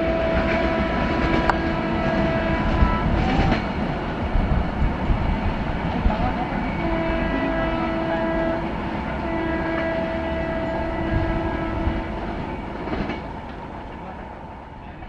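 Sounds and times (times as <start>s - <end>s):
train horn blasts: 0.0s - 3.8s, 6.2s - 13.1s
train wheels clacking on track: 0.0s - 15.0s.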